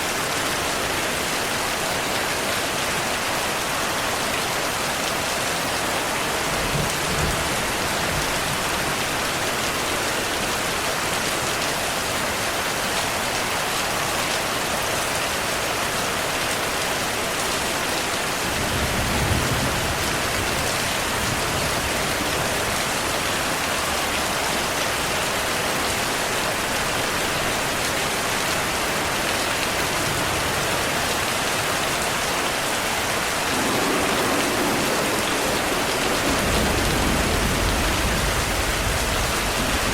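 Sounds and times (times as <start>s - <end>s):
heavy rain falling: 0.0s - 39.9s
thunder rumbling: 33.0s - 39.9s.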